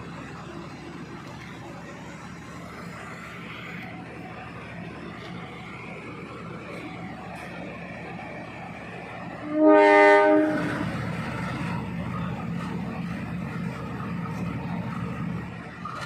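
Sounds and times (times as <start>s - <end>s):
low train rumble: 0.0s - 16.0s
train horn blast: 9.4s - 11.0s.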